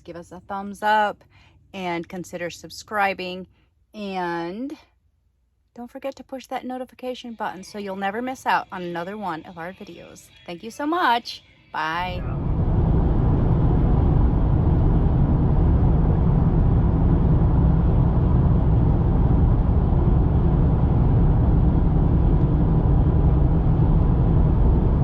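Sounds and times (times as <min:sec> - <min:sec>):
vehicle rumbling on the move: 0:12.0 - 0:25.0.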